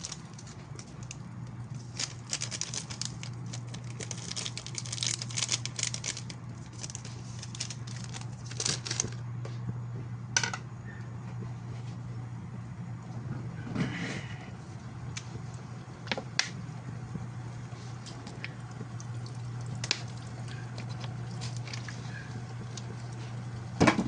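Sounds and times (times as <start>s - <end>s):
hot oil crackling and popping: 0.0s - 9.2s, 14.6s - 24.0s
steady low hum: 0.0s - 24.0s.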